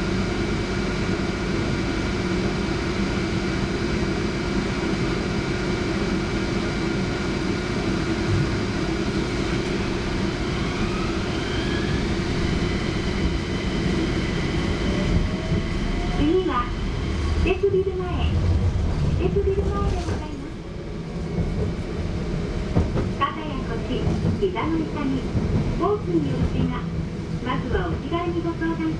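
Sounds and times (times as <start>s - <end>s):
tram interior hum and rumble: 0.0s - 28.9s
traction motor whine rising: 9.7s - 16.2s.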